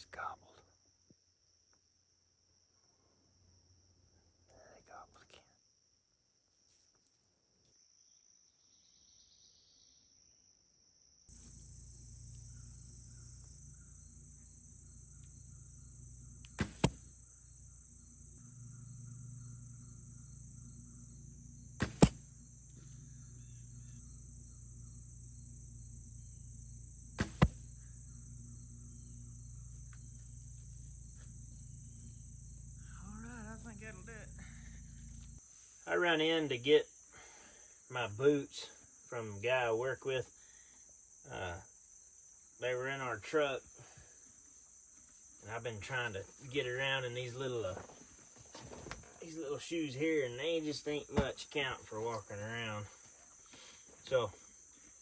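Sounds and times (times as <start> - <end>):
insects buzzing: 2.6 - 55.0
bowstring release: 16.2 - 17.2, 21.7 - 23.2, 27.2 - 27.9
arrow striking target: 16.5 - 17.2, 21.7 - 22.4, 27.2 - 27.8.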